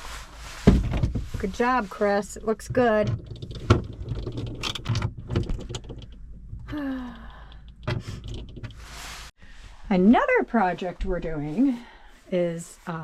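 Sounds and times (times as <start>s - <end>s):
objects clicking and knocking: 2.6s - 6.8s.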